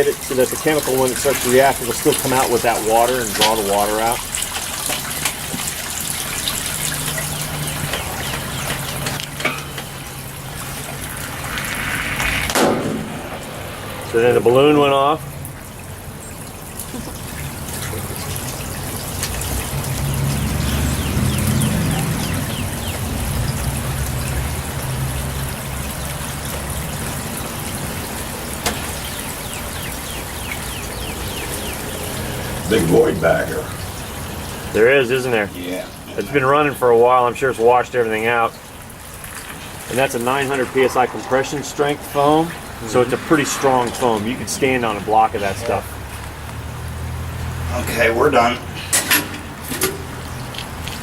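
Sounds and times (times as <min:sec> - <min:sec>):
water gushing into manhole: 0:00.0 - 0:51.0
low hum: 0:31.8 - 0:35.2.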